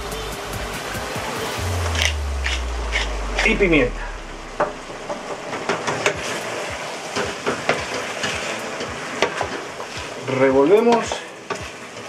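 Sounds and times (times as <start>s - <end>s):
food sizzling in a pot: 4.3s - 12.0s.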